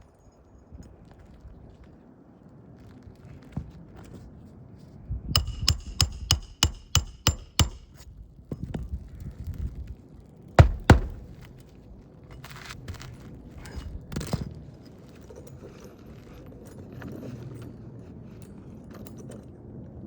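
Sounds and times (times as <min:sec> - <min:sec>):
hammer striking metal: 0:05.4 - 0:08.0, 0:10.6 - 0:11.4.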